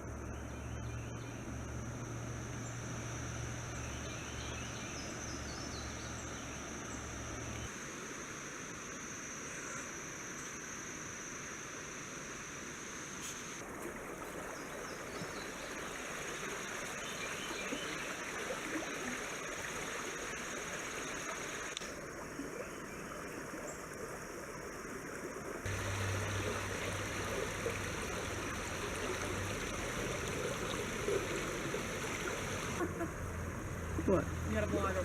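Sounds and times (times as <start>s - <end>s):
stream water rushing: 13.6s - 22.6s, 23.2s - 35.0s
low hum: 25.7s - 34.5s.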